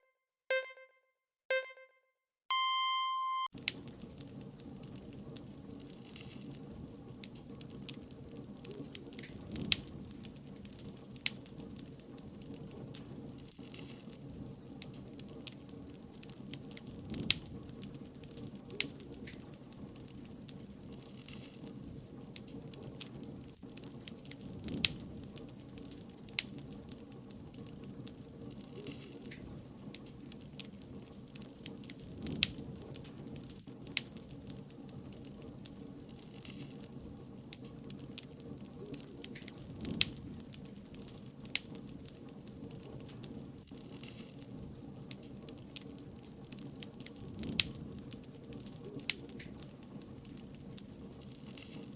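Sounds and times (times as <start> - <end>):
countdown beeps: 0.5 - 3.5
wood fire crackling and popping: 3.5 - 51.9.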